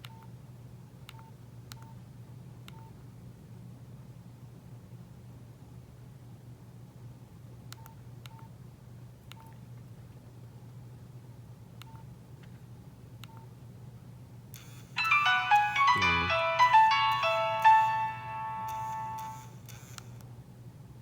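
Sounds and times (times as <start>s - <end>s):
polyphonic ringtone melody: 15.0s - 19.4s.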